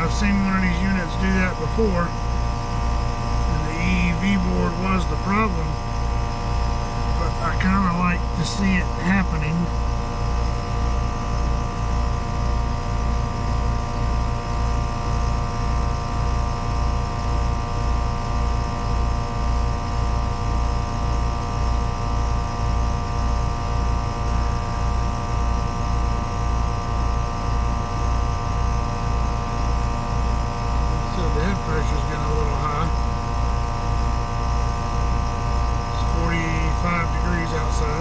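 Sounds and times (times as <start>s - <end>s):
heat pump compressor and fan hum: 0.0s - 38.0s.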